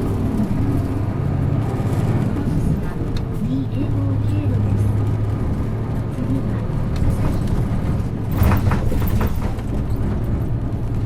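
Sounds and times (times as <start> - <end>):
bus diesel engine running: 0.0 - 11.0
brief clatter: 6.9 - 10.5.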